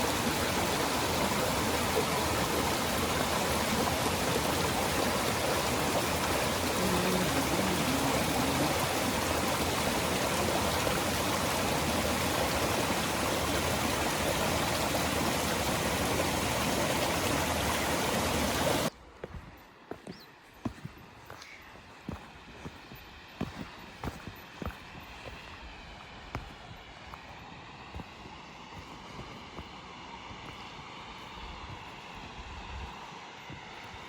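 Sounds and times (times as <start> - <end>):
stream water rushing over rocks: 0.0 - 18.9.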